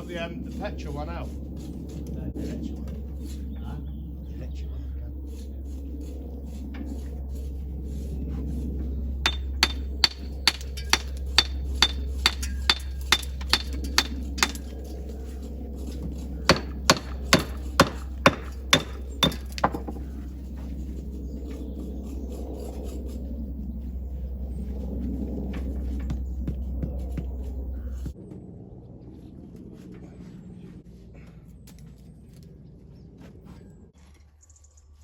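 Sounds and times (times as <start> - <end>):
steady low hum: 0.0 - 34.0
hammer blows with metallic ring: 9.2 - 14.7.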